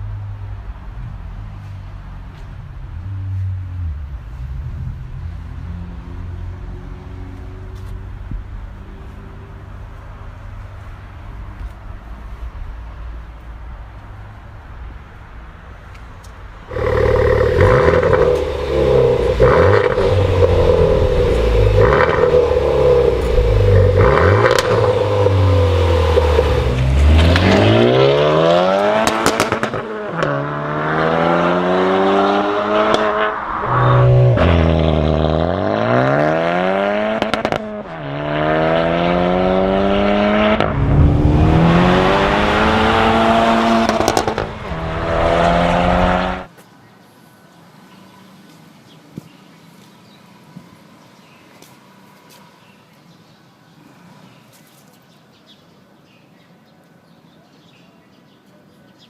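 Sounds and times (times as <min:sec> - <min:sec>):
car engine accelerating through gears: 0:16.7 - 0:46.5.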